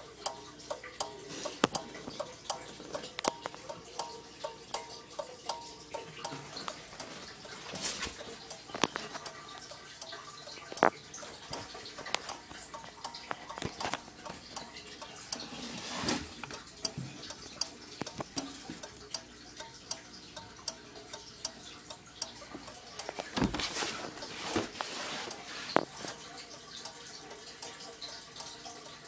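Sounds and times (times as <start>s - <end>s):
flasher relay clicking: 0.0s - 23.4s
thump and rustle: 23.4s - 24.8s.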